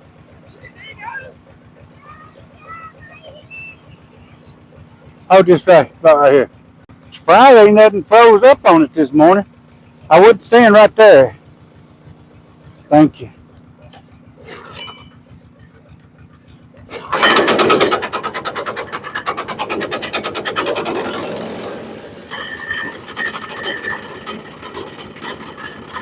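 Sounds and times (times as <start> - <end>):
small gas engine idling: 0.0 - 26.0
bandsaw mill clattering: 14.0 - 26.0.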